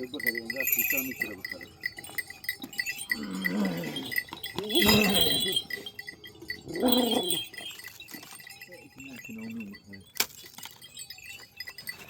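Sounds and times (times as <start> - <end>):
animals bleating: 3.1 - 5.8, 6.6 - 7.7.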